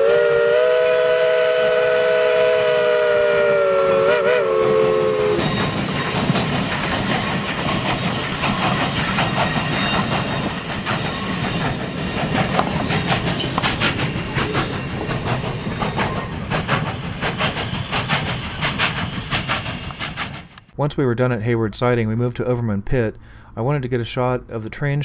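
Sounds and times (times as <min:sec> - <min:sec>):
steam train whistle chord: 0:00.0 - 0:08.4
high-pitched wheel squeal: 0:03.4 - 0:20.1
wheels clicking over rail joints: 0:05.4 - 0:20.7.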